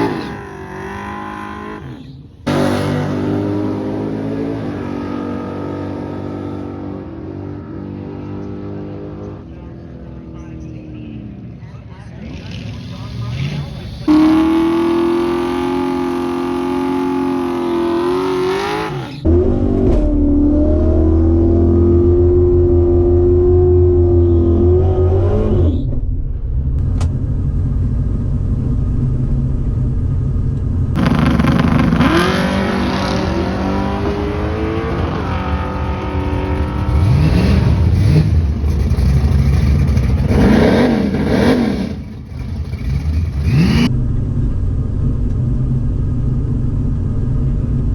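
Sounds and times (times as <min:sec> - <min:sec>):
drag race car engines revving: 0:00.0 - 0:26.0, 0:30.9 - 0:47.8.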